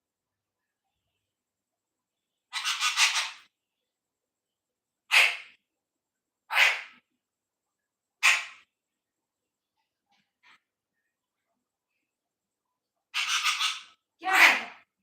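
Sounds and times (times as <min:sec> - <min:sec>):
parrot squawking: 0:02.5 - 0:03.5, 0:05.1 - 0:05.6, 0:06.5 - 0:07.0, 0:08.2 - 0:08.6, 0:13.1 - 0:14.6.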